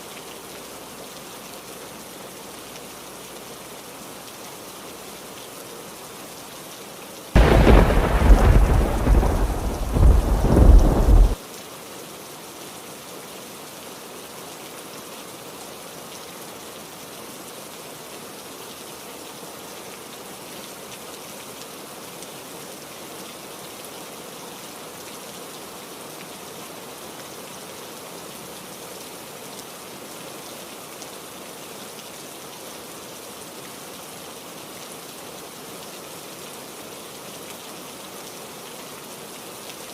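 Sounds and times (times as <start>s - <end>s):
heavy rain: 0.0s - 39.9s
thunder crack and rumble: 7.4s - 11.4s.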